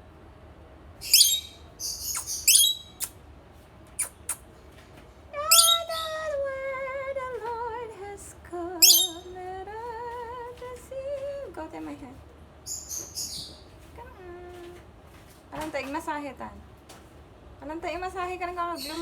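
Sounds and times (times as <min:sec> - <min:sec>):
pet bird squawking: 0:01.0 - 0:03.1, 0:04.0 - 0:04.4, 0:05.5 - 0:06.2, 0:08.8 - 0:09.2.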